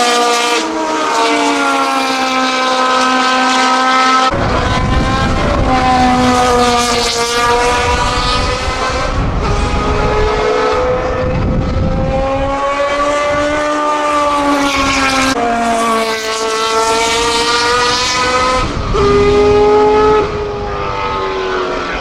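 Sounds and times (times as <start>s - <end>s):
racing car engine: 0.0s - 22.0s
heavy low rumble: 4.3s - 12.8s.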